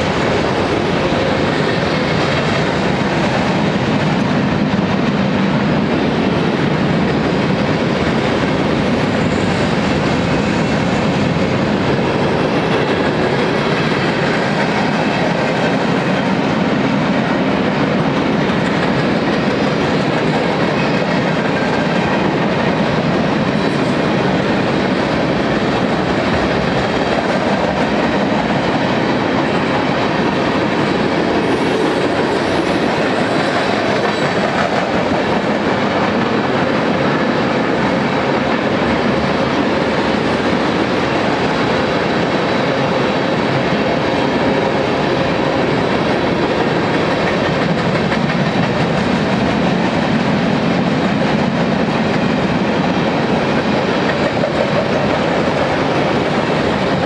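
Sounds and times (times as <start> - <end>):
freight train wheels clattering: 0.0 - 57.0.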